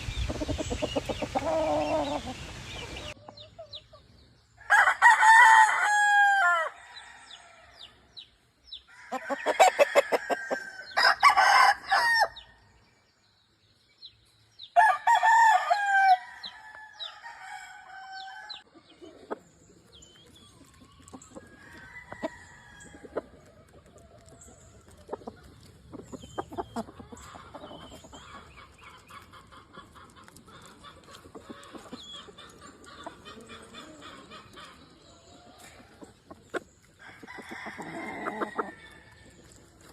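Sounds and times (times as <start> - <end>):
roosters crowing: 0.0 - 3.2, 4.6 - 8.0, 8.9 - 12.6, 14.8 - 18.7, 21.4 - 23.3, 37.0 - 39.6
chicken clucking: 0.0 - 4.3, 18.0 - 39.9.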